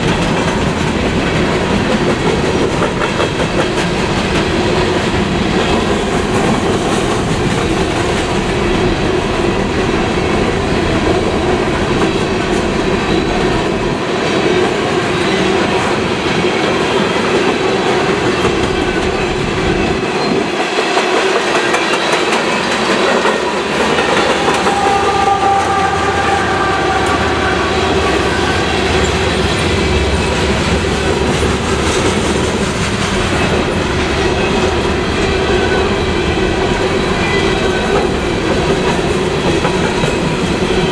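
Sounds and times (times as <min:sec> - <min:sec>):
train wheels clacking on rails: 0:00.0 - 0:40.9.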